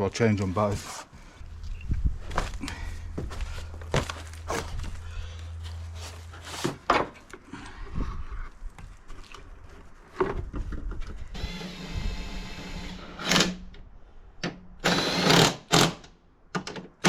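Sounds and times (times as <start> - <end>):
small electric tool whirring: 11.3 - 13.6, 14.8 - 16.0.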